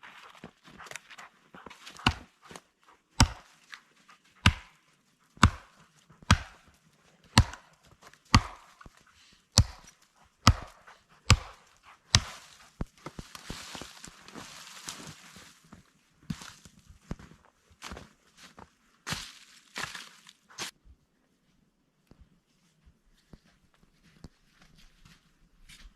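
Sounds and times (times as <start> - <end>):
chopping strikes: 2.0 - 2.3, 3.2 - 3.5, 4.4 - 4.8, 5.4 - 6.7, 7.3 - 7.7, 8.3 - 8.9, 9.6 - 13.5.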